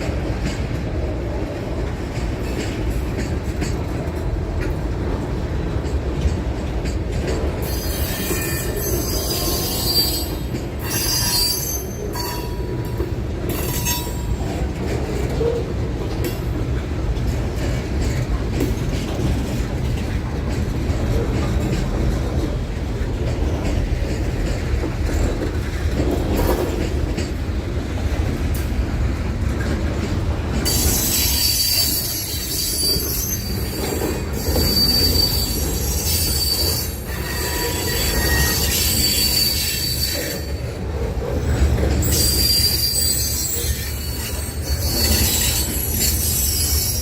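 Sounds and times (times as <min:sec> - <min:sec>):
train rumbling past: 0:00.0 - 0:47.0
steel wheel squeal: 0:07.6 - 0:12.8, 0:30.7 - 0:40.8, 0:41.5 - 0:47.0.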